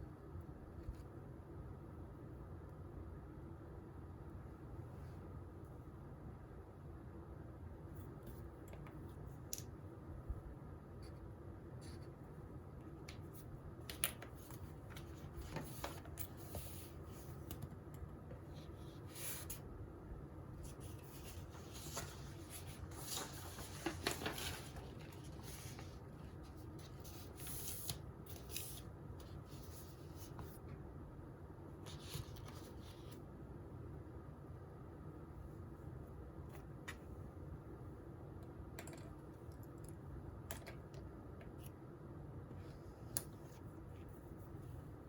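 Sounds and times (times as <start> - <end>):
low room hum: 0.0 - 45.0
paper rustling: 20.6 - 30.6.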